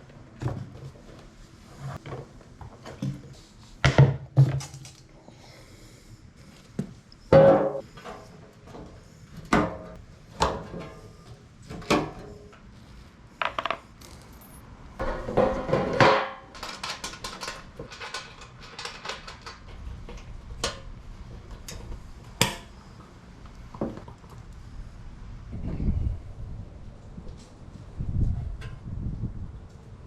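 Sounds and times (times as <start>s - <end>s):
metal tools clinking and knocking: 13.4s - 14.7s.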